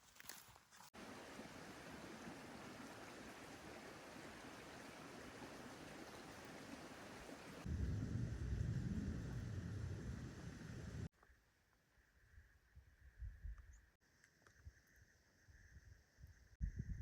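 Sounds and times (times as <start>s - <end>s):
stream rushing: 1.0s - 7.7s
loud low rumble: 7.7s - 11.1s.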